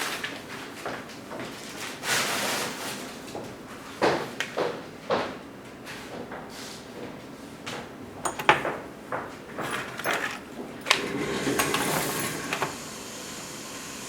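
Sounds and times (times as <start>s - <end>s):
tools scraping on workbench: 9.5s - 12.8s
metallic tool clinks and knocks: 9.6s - 11.0s.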